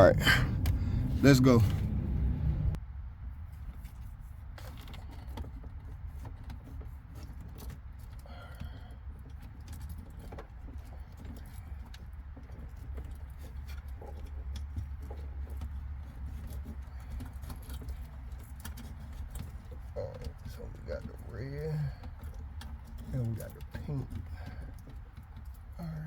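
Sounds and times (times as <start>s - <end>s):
steady low rumble: 0.0s - 2.8s.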